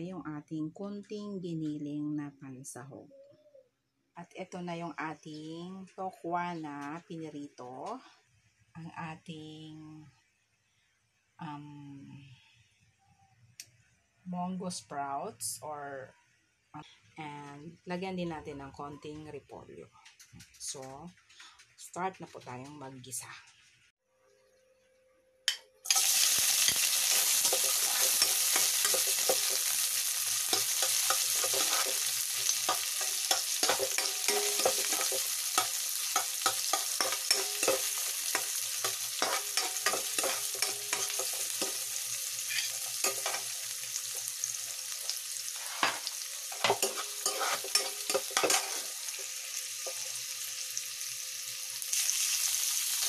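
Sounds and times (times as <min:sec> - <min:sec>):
food sizzling in hot oil: 0:25.8 - 0:53.0
spatula scraping a pan: 0:25.9 - 0:43.7, 0:45.5 - 0:50.2.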